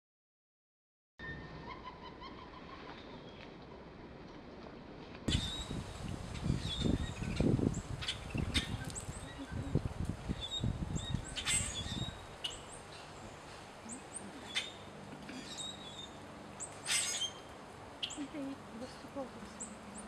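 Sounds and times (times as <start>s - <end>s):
birds chirping: 5.3s - 20.0s.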